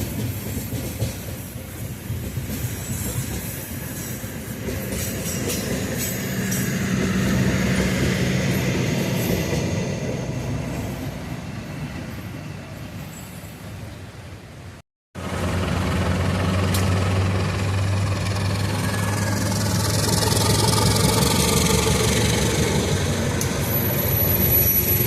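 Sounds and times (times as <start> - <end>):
train wheels clattering on rails: 0.0 - 10.3, 15.3 - 25.0
locomotive engine hum: 15.2 - 25.0.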